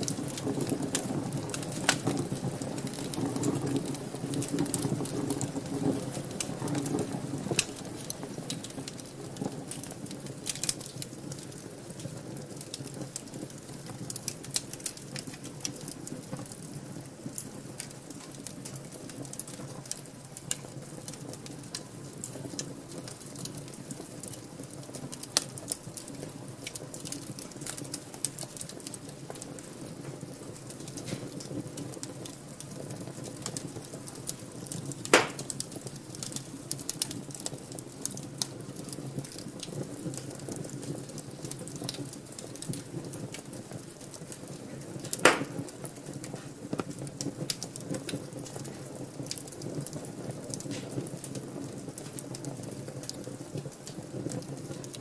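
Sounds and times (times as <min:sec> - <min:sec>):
low flame rumble: 0:00.0 - 0:55.0
wood fire crackling: 0:00.0 - 0:55.0.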